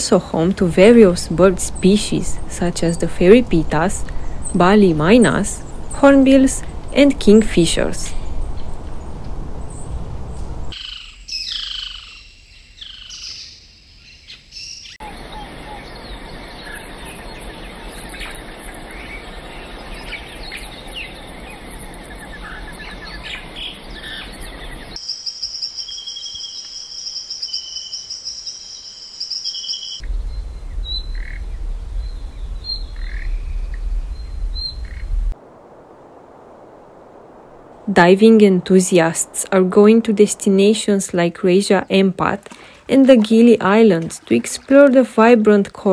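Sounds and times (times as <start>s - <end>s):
low rumble: 0.6s - 10.8s, 30.0s - 41.3s
chorus of bird chirps: 10.6s - 35.1s
falling whistled bird calls: 10.7s - 35.2s
steady high hiss: 15.0s - 41.8s.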